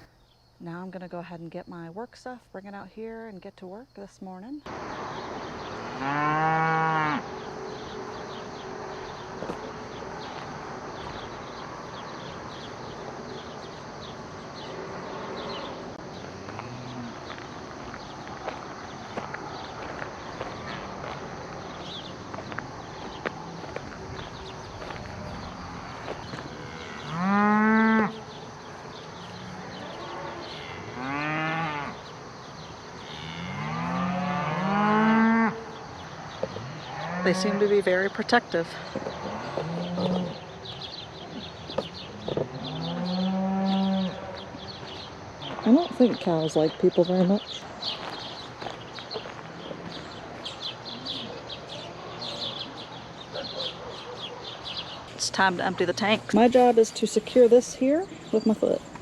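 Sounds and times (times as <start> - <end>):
cow mooing: 5.8 - 7.5, 25.7 - 28.3, 29.2 - 32.0, 33.0 - 35.7, 36.6 - 37.8, 39.2 - 40.4, 42.1 - 44.5.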